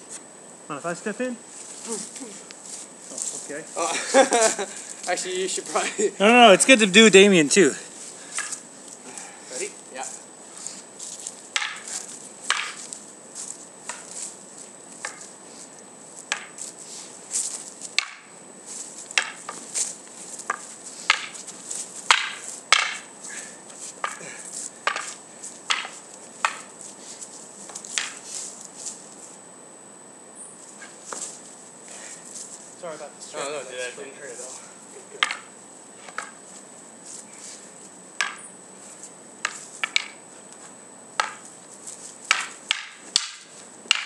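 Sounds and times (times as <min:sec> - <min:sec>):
wooden practice swords clacking: 0:08.4 - 0:08.6, 0:11.6 - 0:13.0, 0:16.3 - 0:16.6, 0:17.9 - 0:18.3, 0:19.1 - 0:23.1, 0:24.0 - 0:26.7, 0:27.7 - 0:28.2, 0:35.2 - 0:35.5, 0:38.2 - 0:38.4, 0:39.4 - 0:40.2, 0:41.2 - 0:41.4, 0:42.3 - 0:44.0.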